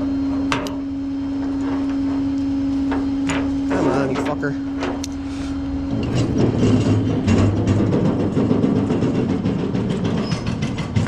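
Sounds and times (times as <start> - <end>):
hydraulic equipment hum: 0.0 - 11.0
rough mechanical running noise: 0.0 - 11.0.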